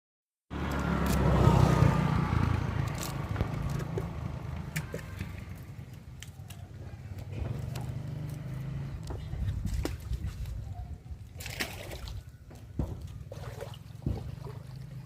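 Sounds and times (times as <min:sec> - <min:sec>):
vehicle engine passing by: 0:00.5 - 0:10.3.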